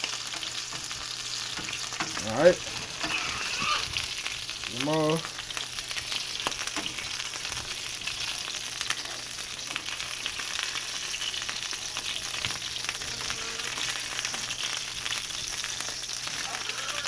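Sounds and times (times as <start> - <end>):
deep-frying sizzle with crackling pops: 0.0 - 17.0.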